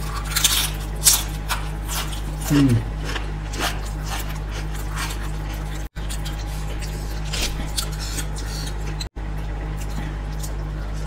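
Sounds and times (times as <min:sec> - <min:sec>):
steady low hum: 0:00.0 - 0:11.0
wet chewing and mouth sounds: 0:00.0 - 0:11.0.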